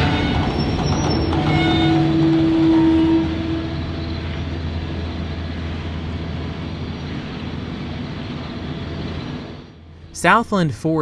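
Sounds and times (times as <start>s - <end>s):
train horn: 0.0s - 6.0s
diesel locomotive engine rumbling: 0.0s - 11.0s.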